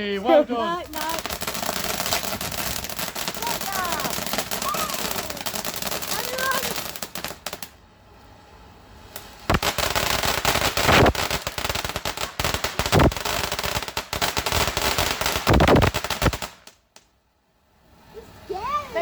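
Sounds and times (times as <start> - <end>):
firework crackling bangs: 0.7 - 7.8, 9.1 - 17.0.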